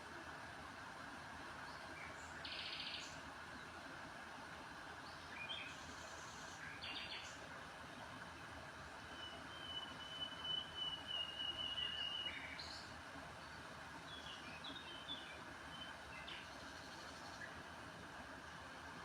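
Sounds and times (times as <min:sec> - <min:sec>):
steady background hiss: 0:00.0 - 0:19.0
small birds calling: 0:01.7 - 0:03.2, 0:05.1 - 0:07.4.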